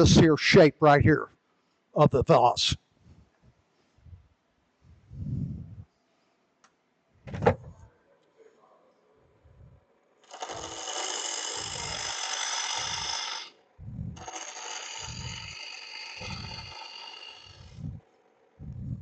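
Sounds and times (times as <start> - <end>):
gouge cutting wood on a lathe: 10.2 - 17.8.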